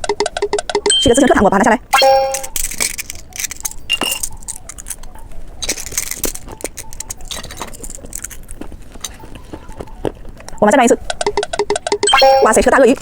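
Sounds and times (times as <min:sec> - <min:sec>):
small hard clicks and clinks: 0:02.0 - 0:09.2.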